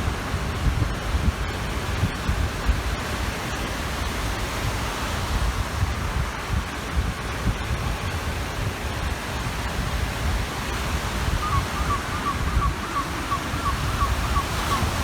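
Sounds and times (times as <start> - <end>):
waves washing on shore: 0.0 - 15.0
wind rumble on microphone: 0.0 - 15.0
bird short repeated calls: 11.4 - 15.0.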